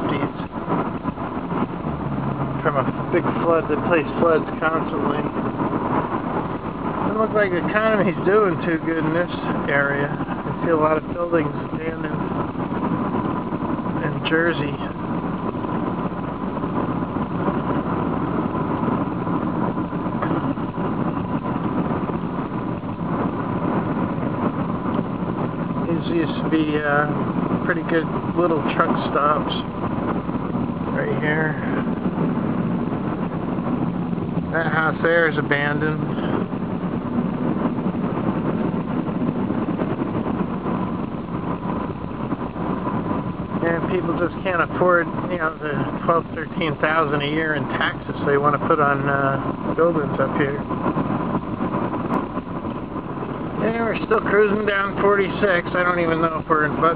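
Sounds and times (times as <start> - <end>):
car engine rumble: 0.0 - 56.9
faint steady whine: 0.0 - 56.9
road noise hiss: 0.0 - 56.9.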